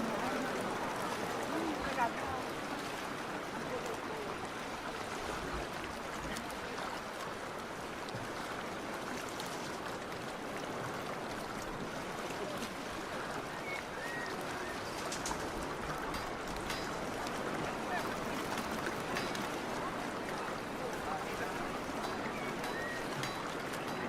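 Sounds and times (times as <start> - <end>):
waves lapping along shore: 0.0 - 24.0
faint clicks: 14.8 - 17.4.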